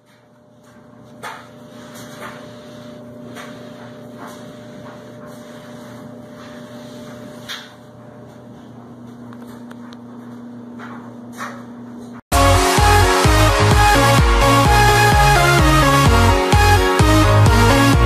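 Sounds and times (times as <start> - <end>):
steady hum: 0.1 - 18.0.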